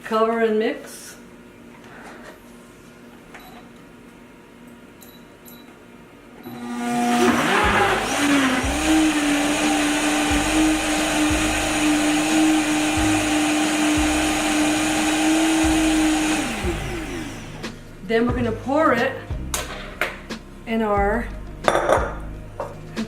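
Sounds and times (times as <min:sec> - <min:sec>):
blender motor running: 0:06.5 - 0:18.0.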